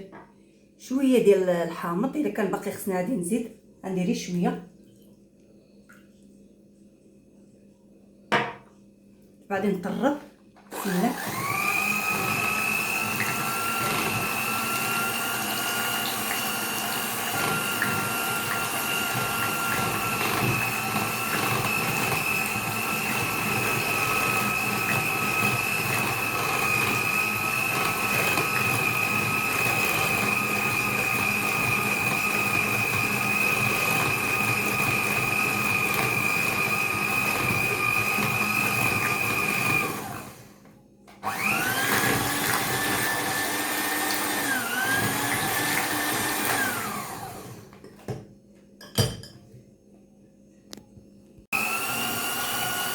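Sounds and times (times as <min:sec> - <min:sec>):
electric mixer whirring: 0:10.7 - 0:40.6, 0:41.2 - 0:47.8, 0:51.5 - 0:52.9.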